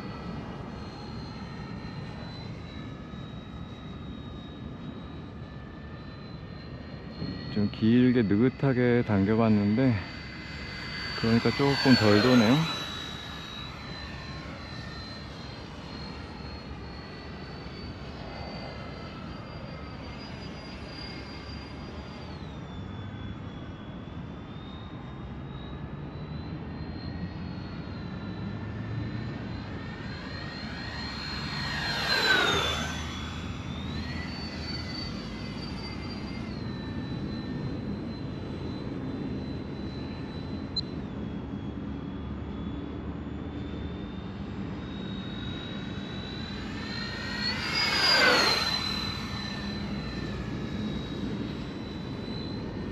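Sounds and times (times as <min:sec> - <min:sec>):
electric ducted fans whining: 0:07.2 - 0:17.4, 0:25.2 - 0:52.9.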